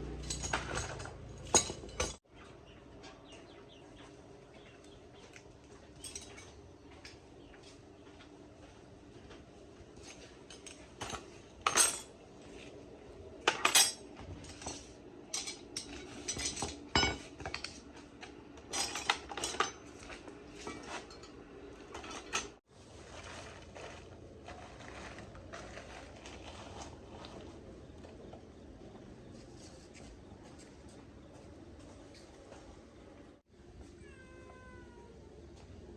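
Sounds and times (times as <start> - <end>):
metallic clinks and clatters: 0.0 - 2.2, 5.9 - 7.2.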